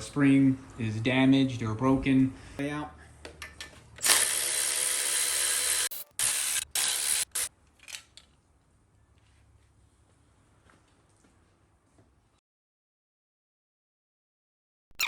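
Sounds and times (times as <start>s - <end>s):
handheld power tool running: 4.0s - 7.5s.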